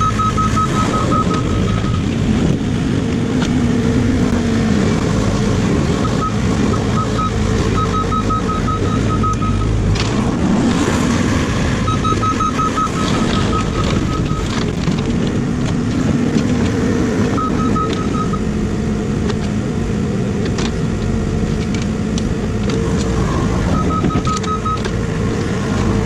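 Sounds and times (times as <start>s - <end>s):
reversing alarm beeping: 0.0s - 2.1s, 6.0s - 9.8s, 11.8s - 14.8s, 17.3s - 18.5s, 23.4s - 25.0s
excavator engine and hydraulics: 0.0s - 26.0s.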